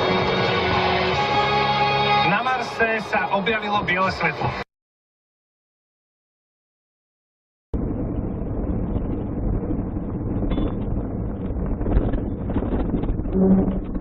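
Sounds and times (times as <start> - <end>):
car engine rumble: 7.8 - 14.0
road noise: 7.8 - 14.0
wind buffeting microphone: 7.8 - 14.0.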